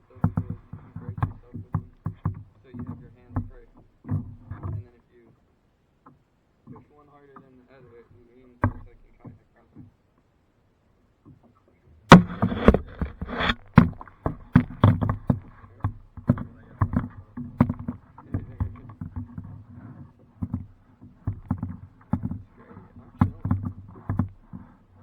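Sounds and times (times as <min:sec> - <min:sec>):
kayak paddle strokes splashing: 0:00.0 - 0:04.9, 0:12.1 - 0:25.0.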